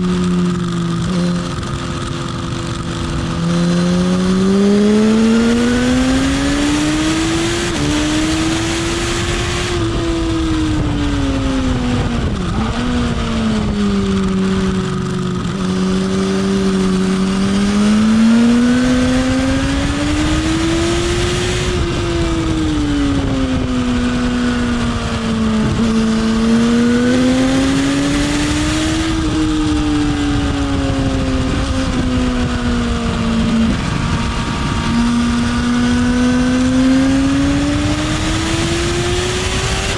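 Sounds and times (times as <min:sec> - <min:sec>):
motorcycle engine accelerating: 0:00.0 - 0:39.9
wind rushing over microphone: 0:00.0 - 0:39.9.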